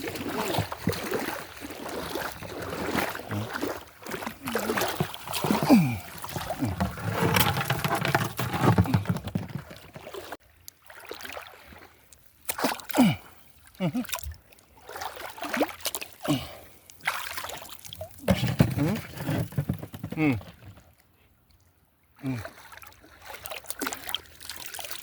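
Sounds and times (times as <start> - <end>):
water sloshing and splashing: 0.0 - 13.2, 14.0 - 21.0, 22.4 - 25.0
scattered knocks: 6.8 - 10.1.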